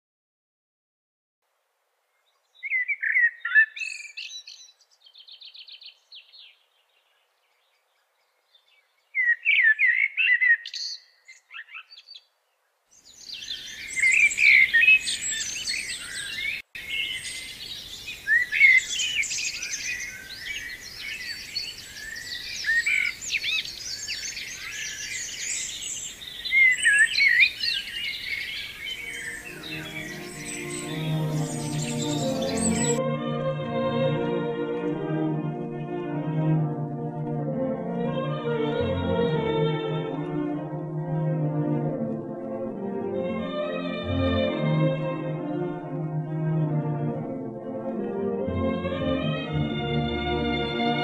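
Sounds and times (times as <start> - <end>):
faint background noise: 1.4 - 10.2, 11.0 - 32.9
bird song with trill: 2.1 - 33.0
chorus of many birds singing: 2.2 - 33.0.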